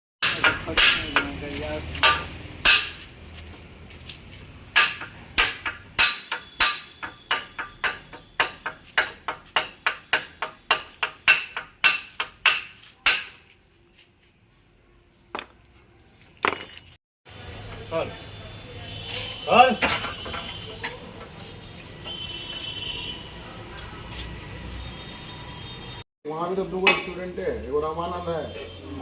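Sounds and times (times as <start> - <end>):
hammer striking metal: 0.2 - 1.4, 2.0 - 3.1, 4.7 - 13.4, 26.8 - 27.2.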